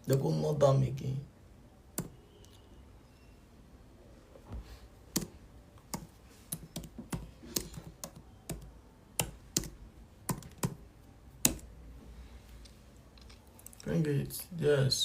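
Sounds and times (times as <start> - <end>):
computer keyboard typing: 1.9 - 2.6, 5.1 - 11.8.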